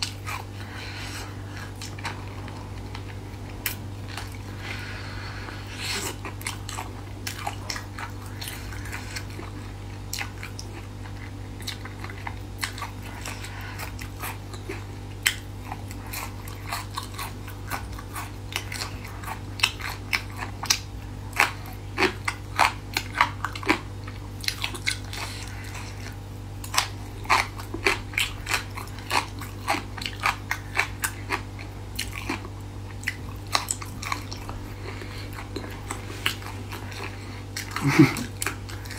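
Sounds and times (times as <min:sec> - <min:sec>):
low hum: 0:00.0 - 0:09.9
chewing crunchy food: 0:00.0 - 0:38.9.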